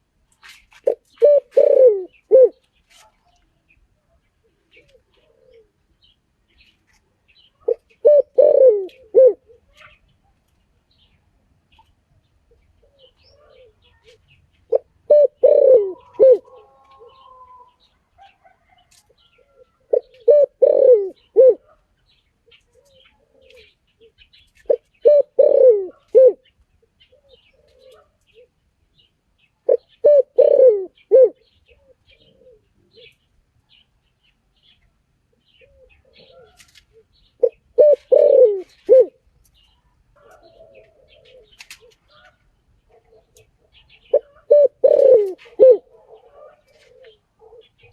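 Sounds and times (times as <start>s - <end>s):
small birds chirping: 0.0s - 47.9s
dove cooing: 0.8s - 3.1s, 4.5s - 6.1s, 7.6s - 10.0s, 12.5s - 21.8s, 22.5s - 28.6s, 29.6s - 33.2s, 35.5s - 39.3s, 40.2s - 47.9s.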